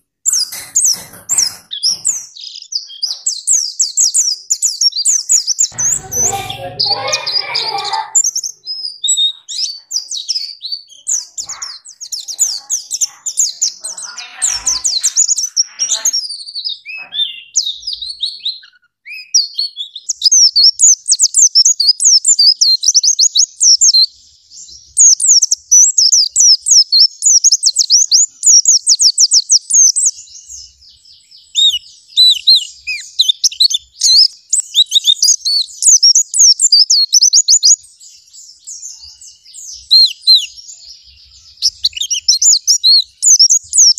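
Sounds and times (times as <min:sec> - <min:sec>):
songbird singing: 0:00.0 - 0:43.9
rough low bird calls: 0:04.9 - 0:10.6.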